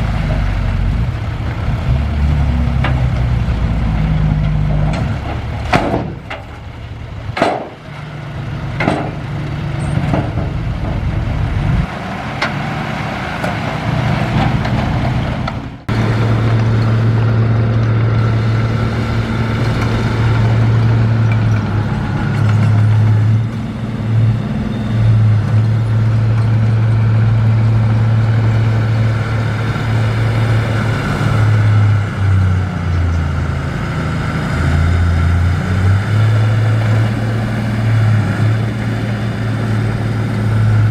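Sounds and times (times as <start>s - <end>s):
heavy diesel machinery running: 0.0s - 40.9s
low engine drone: 0.0s - 40.9s
sharp knocks: 4.1s - 6.7s, 7.3s - 8.1s.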